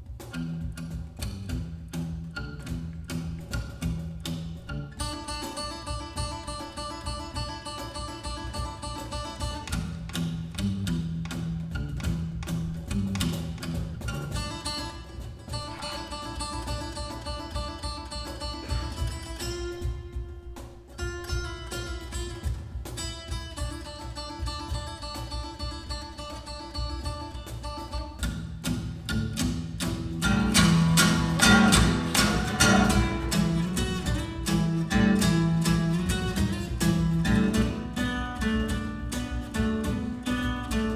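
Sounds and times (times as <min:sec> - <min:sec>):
acoustic guitar music: 0:00.0 - 0:40.9
low bass notes: 0:28.6 - 0:40.2.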